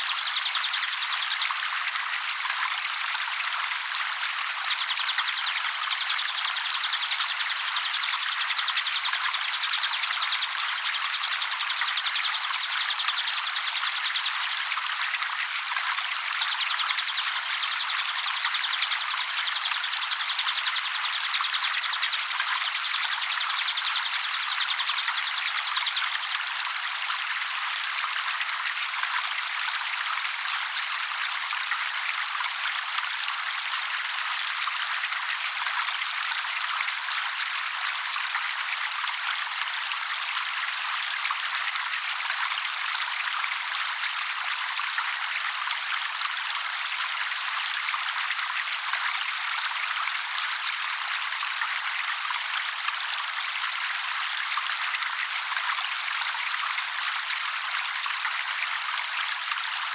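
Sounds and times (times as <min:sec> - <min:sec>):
water trickling and splashing: 0:00.0 - 0:32.0.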